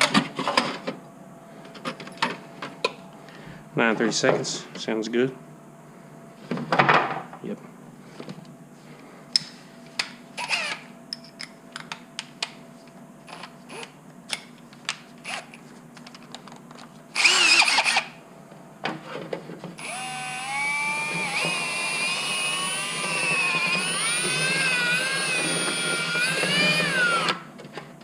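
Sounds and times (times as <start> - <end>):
power drill whining: 10.4 - 10.8, 17.2 - 18.2, 19.8 - 27.5
clicks and knocks of tools: 11.1 - 12.6.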